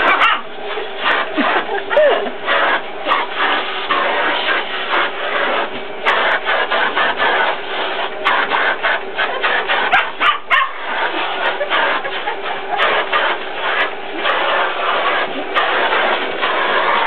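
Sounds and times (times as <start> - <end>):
puppy barking and yipping: 0.0 - 0.5, 9.9 - 10.9
vacuum cleaner running: 0.0 - 17.0.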